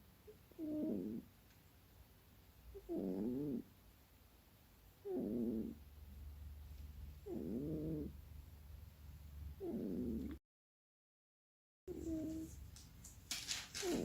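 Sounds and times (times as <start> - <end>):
cat low wavering vocal sounds: 0.3 - 1.2, 2.7 - 3.7, 5.0 - 5.8, 7.2 - 8.2, 9.6 - 10.4, 11.9 - 12.5.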